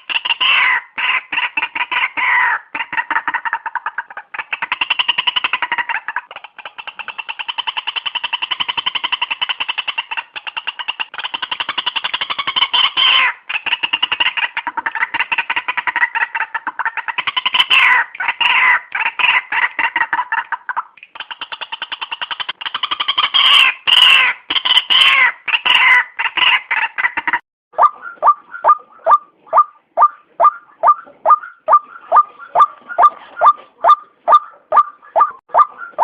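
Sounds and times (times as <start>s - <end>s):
bird calling repeated notes: 27.7s - 36.0s.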